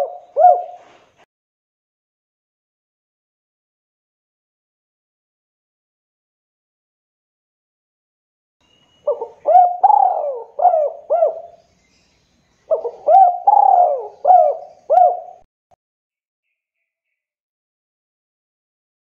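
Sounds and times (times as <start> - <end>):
dove cooing: 0.0 - 1.0, 9.0 - 11.6, 12.7 - 15.5.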